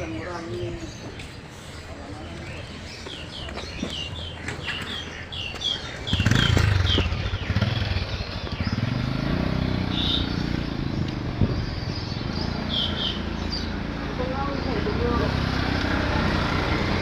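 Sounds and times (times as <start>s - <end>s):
small birds chirping: 0.0s - 17.0s
motorcycle engine running: 5.6s - 17.0s.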